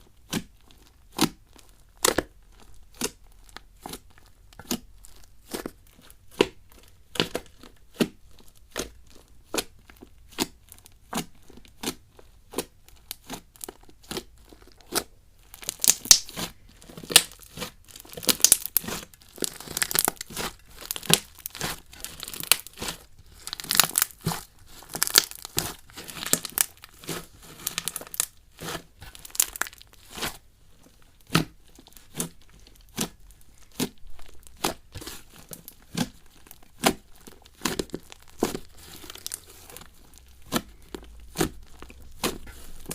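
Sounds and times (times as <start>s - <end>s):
slime clicking and popping: 14.9s - 28.4s, 29.0s - 30.2s, 31.2s - 42.9s.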